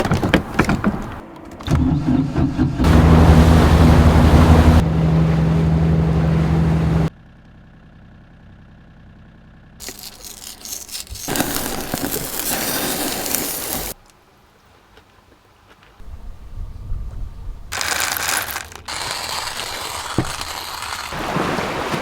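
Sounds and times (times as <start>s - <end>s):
boat motor running: 0.0s - 7.1s
low hum: 1.6s - 11.3s
wind and water rushing: 2.8s - 7.1s, 21.1s - 22.0s.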